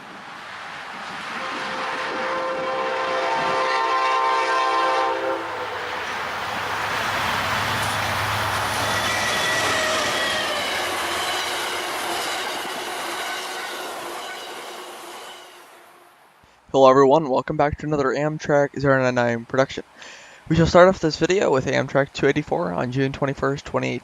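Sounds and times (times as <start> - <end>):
train passing with wheel clatter: 0.0 - 16.4
train horn chord: 1.4 - 5.9.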